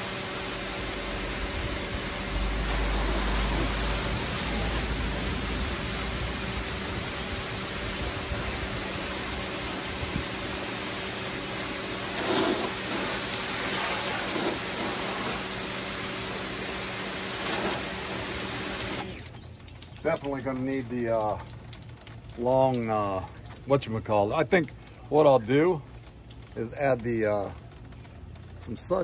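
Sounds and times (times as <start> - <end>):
pressure washer water jet hissing: 0.0 - 19.3
pump motor humming: 0.0 - 29.0.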